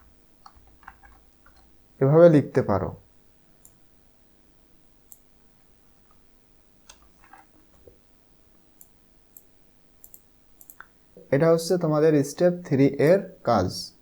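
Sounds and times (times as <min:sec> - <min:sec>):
faint clicks: 0:05.1 - 0:05.3, 0:08.8 - 0:11.8.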